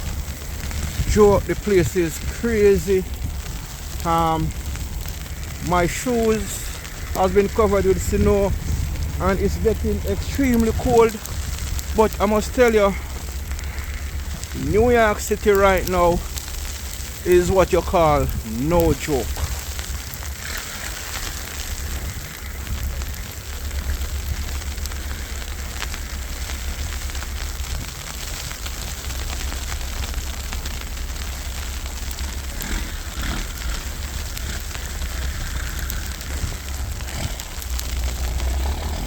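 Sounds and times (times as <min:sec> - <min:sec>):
wind buffeting microphone: 0:00.0 - 0:39.0
wind-driven snow hiss: 0:00.0 - 0:39.0.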